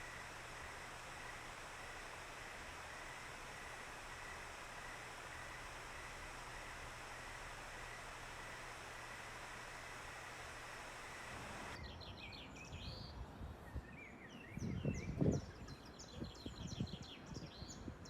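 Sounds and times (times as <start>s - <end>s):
steady hiss: 0.0s - 11.8s.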